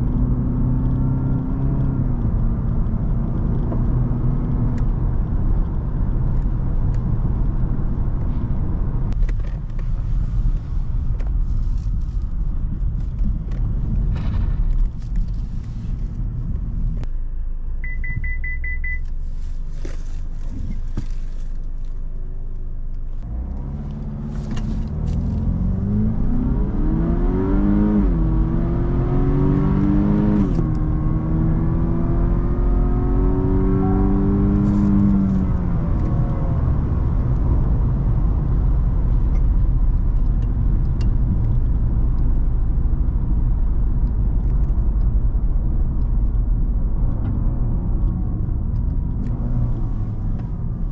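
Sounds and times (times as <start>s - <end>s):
car engine accelerating: 0.0s - 50.9s
road and tyre rumble: 0.0s - 50.9s
quick beeps: 17.8s - 19.1s.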